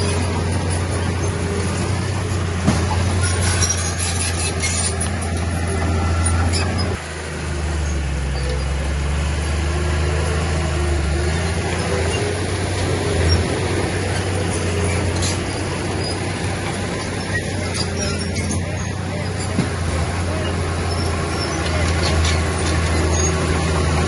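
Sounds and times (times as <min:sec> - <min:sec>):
heavy machinery diesel engine drone: 0:00.0 - 0:24.0.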